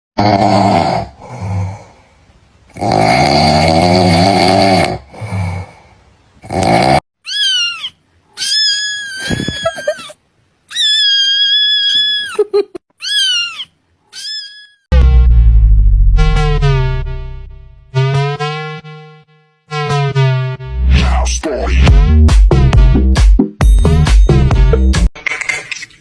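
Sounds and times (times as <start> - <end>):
cat meowing: 7.2 - 12.4, 13.0 - 14.8.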